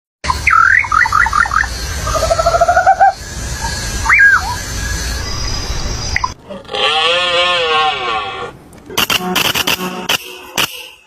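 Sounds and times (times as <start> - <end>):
bird calls: 0.2 - 6.4
steady low rumble: 1.2 - 6.5.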